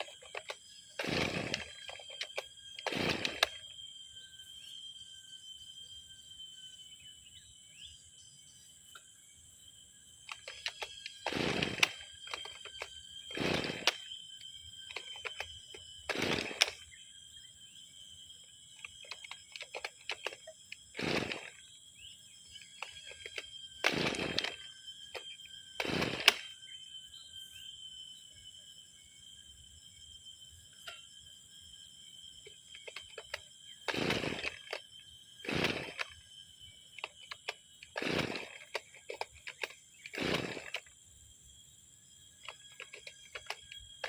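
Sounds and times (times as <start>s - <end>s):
recoil starter pull rasping: 0.0s - 3.6s, 10.3s - 14.1s, 14.8s - 16.8s, 18.8s - 21.6s, 22.5s - 26.5s, 32.7s - 36.2s, 37.0s - 40.9s, 42.4s - 43.8s.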